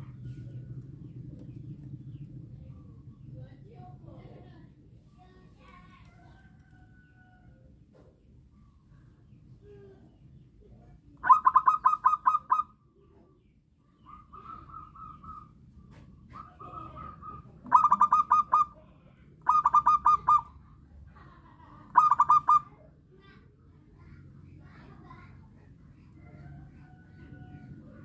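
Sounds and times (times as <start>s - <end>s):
dove cooing: 11.2s - 12.8s, 14.1s - 20.6s, 21.9s - 22.8s.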